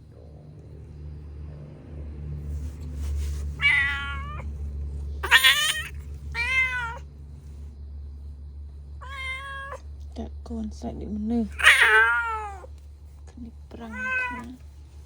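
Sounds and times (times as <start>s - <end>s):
steady low hum: 0.0s - 15.0s
cat meowing: 3.6s - 4.5s, 5.2s - 7.1s, 9.0s - 9.8s, 11.5s - 12.7s, 13.8s - 14.6s.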